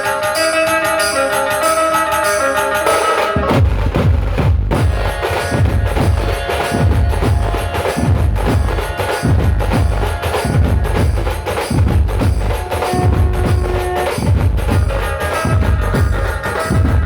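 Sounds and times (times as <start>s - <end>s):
heavy deep drums: 3.5s - 17.0s
band melody of held notes: 4.8s - 17.0s.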